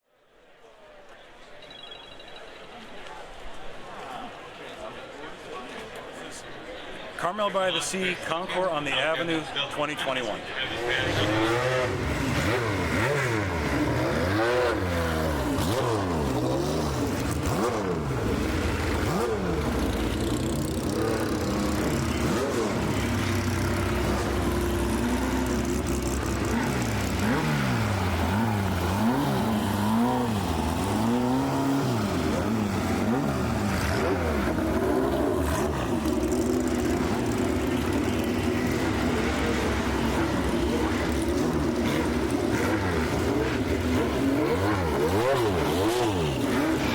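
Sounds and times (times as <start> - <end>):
car engine revving: 10.6 - 46.9.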